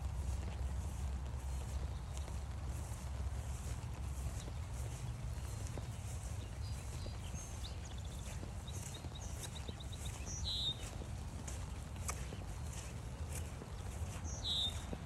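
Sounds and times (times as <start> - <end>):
low steady rumble: 0.0 - 8.2
footsteps on forest trail: 0.0 - 15.0
songbirds calling: 0.0 - 15.0.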